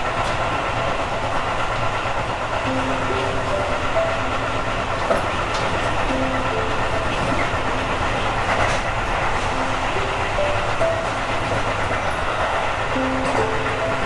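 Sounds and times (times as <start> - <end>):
electric train running rumble: 0.0 - 14.0
wheels clicking over rail joints: 0.0 - 14.0
faint tune of rising notes: 2.6 - 8.2, 9.4 - 14.0.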